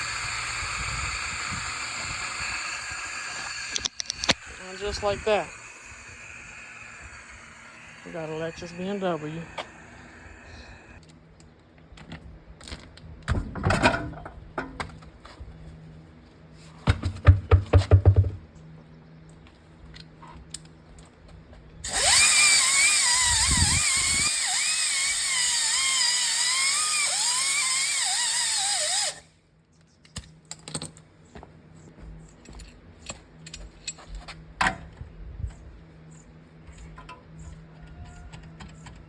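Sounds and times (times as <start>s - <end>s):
power tool running: 0.0s - 11.0s, 21.8s - 29.2s.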